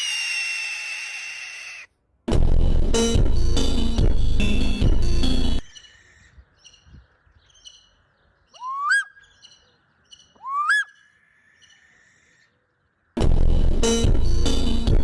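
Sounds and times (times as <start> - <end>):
faint high bird chirps: 0.0 - 1.9, 5.6 - 13.0
loud swooping bird calls: 0.0 - 1.9, 7.6 - 12.6.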